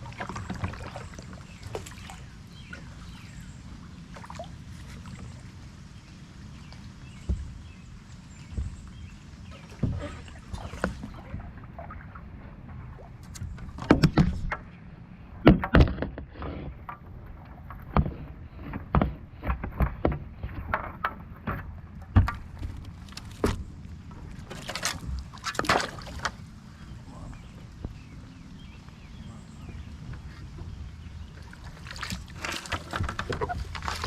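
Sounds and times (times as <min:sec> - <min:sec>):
water washing: 0:00.0 - 0:14.2, 0:16.8 - 0:28.0, 0:29.2 - 0:34.0
paddle splashing: 0:00.0 - 0:14.8, 0:15.5 - 0:34.0
paddle knocking on kayak hull: 0:07.2 - 0:07.7, 0:15.5 - 0:23.7.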